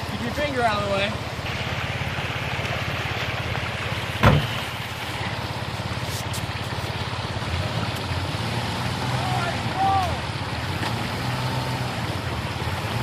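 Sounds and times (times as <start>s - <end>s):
truck engine running: 0.0s - 13.0s
water noise: 0.0s - 13.0s
loud knock: 4.2s - 4.6s.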